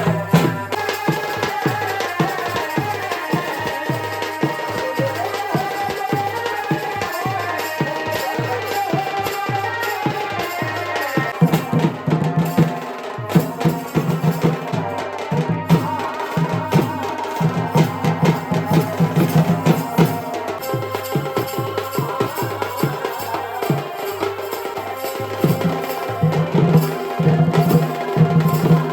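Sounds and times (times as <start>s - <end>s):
fast drumming: 0.0s - 28.9s.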